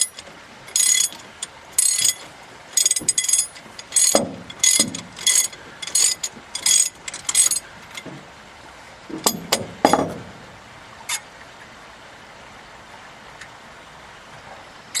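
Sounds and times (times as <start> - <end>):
metallic knocks and clinks: 0.0 - 8.2, 9.1 - 10.4.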